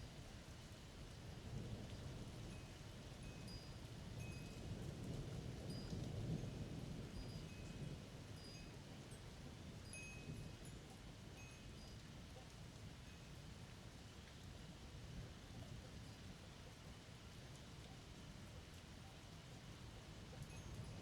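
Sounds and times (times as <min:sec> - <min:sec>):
wind chimes tinkling: 0:09.8 - 0:10.6.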